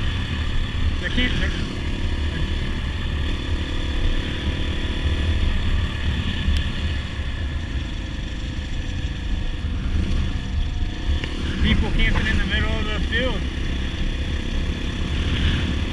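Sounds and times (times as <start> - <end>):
dirt bike engine running: 0.0 - 15.9.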